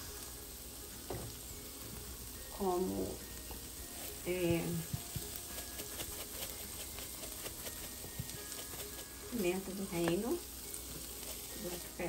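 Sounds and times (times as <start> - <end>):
food sizzling in a frying pan: 0.0 - 12.0
utensils scraping in pan: 3.6 - 12.0.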